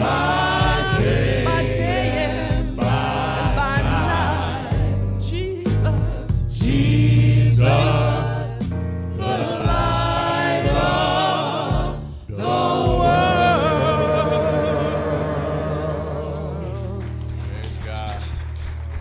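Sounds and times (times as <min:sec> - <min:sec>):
gospel choir singing: 0:00.0 - 0:17.4
instrumental accompaniment: 0:00.0 - 0:19.0.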